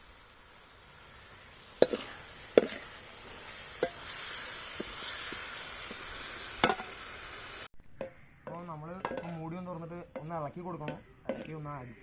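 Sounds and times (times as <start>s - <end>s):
curry sizzling and bubbling: 0.0s - 12.0s
spoon knocking against pan: 8.0s - 9.4s, 10.1s - 11.7s.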